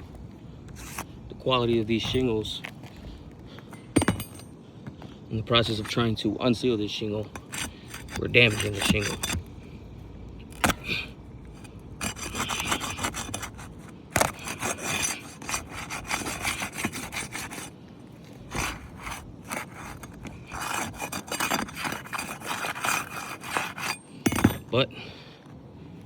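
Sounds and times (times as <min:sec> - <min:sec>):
scraping on gritty shingle: 0:00.0 - 0:09.8, 0:10.4 - 0:25.6
shingle snapping: 0:10.5 - 0:17.7.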